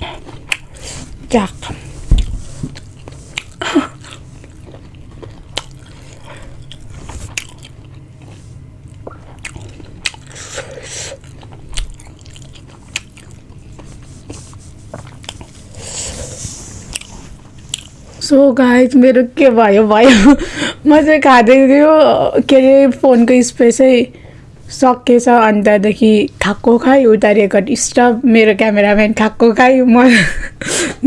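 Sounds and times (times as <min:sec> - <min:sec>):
person chewing food: 0:00.0 - 0:18.1.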